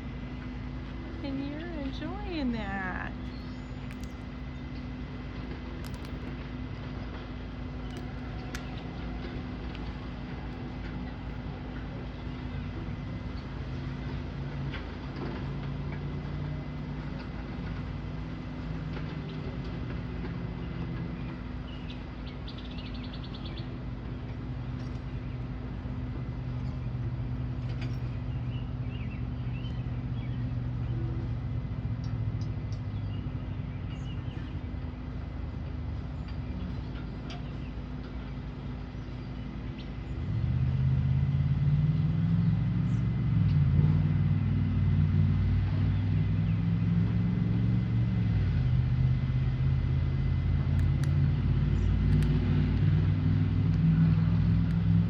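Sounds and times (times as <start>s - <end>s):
vehicle engine hum: 0.0s - 55.0s
faint high clicks and chirps: 3.3s - 4.9s, 5.8s - 6.4s.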